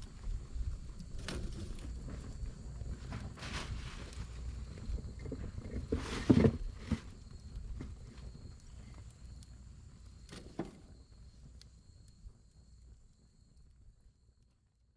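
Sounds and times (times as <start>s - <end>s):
campfire crackling: 0.0s - 6.0s, 6.6s - 12.2s.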